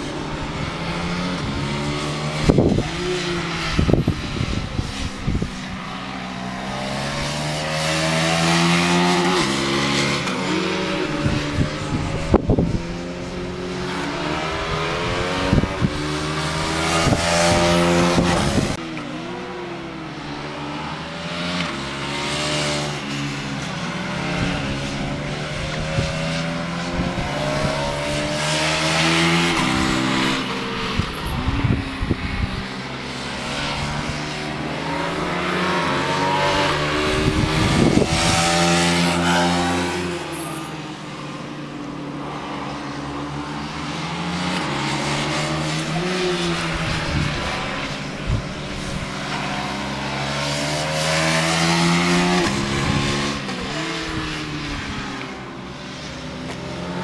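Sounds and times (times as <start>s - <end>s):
motorcycle engine accelerating: 0.0s - 6.0s, 6.6s - 40.9s, 43.6s - 57.0s.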